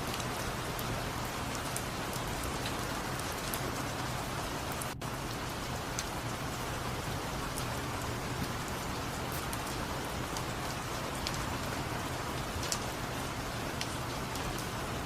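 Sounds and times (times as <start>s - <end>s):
steady rain hissing: 0.0s - 15.0s
single raindrops ticking: 7.5s - 13.1s, 13.7s - 14.7s.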